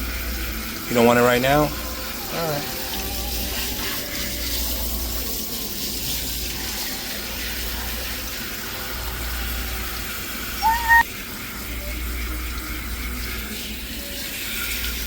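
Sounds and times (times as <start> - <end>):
water running from a tap: 0.0 - 15.0
high-pitched squeak: 10.6 - 11.0.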